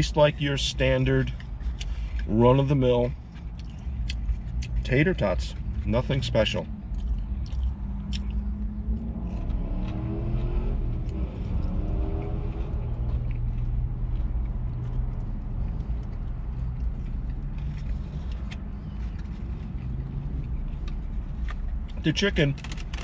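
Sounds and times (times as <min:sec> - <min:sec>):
person chewing: 0:00.8 - 0:23.0
food packaging clicks: 0:22.4 - 0:23.0.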